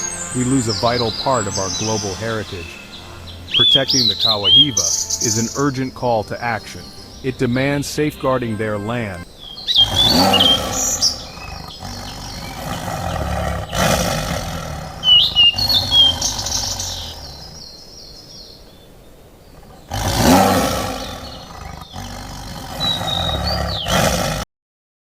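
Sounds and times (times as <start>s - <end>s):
chirping bird calls: 0.0s - 24.4s
low animal roars: 9.7s - 17.6s, 19.7s - 24.4s.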